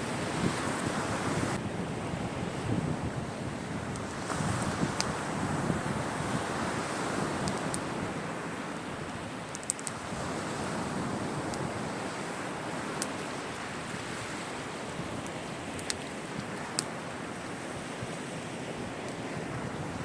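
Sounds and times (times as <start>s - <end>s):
sea waves washing onto shore: 0.0s - 20.0s
wood fire popping: 9.5s - 10.0s.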